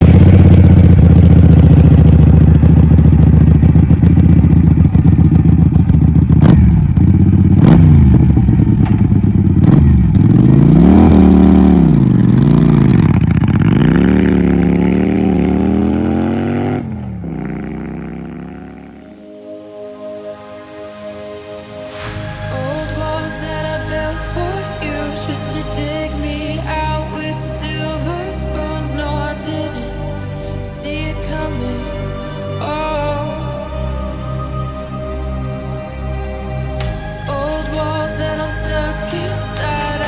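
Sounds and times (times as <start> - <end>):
exhaust pops: 0.0 - 14.2
motorcycle engine revving: 0.0 - 19.3.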